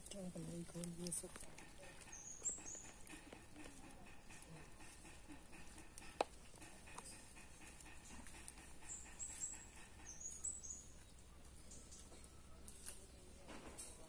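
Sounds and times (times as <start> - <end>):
faint small bird chirps: 2.1 - 3.0, 8.8 - 13.4.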